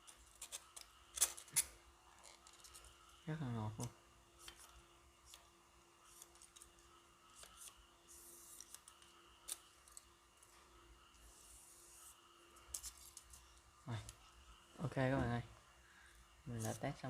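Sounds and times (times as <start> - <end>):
hot wire cutting foam: 3.8 - 14.2.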